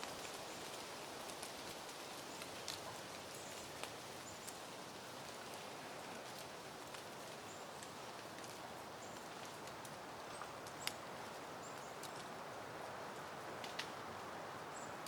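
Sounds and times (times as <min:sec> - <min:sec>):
faint light ticks: 0:00.0 - 0:04.6, 0:06.2 - 0:12.4, 0:13.2 - 0:14.0
wind rustling foliage: 0:00.0 - 0:15.0.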